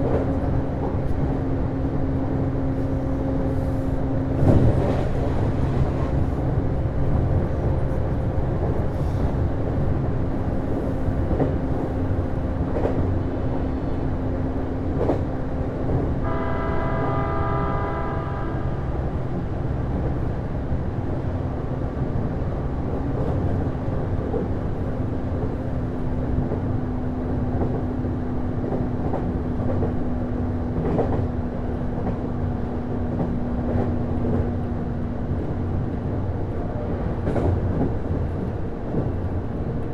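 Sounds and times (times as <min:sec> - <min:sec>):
train engine low rumble: 0:00.0 - 0:39.9
train horn: 0:16.2 - 0:19.3.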